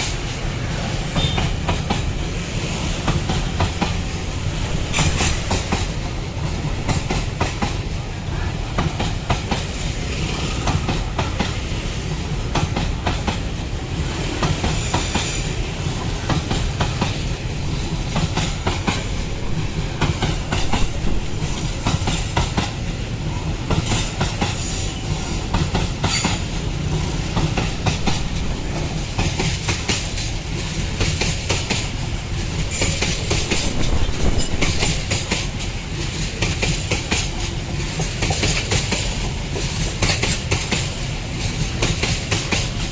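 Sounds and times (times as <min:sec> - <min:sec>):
train wagons rumbling past: 0:00.0 - 0:42.9.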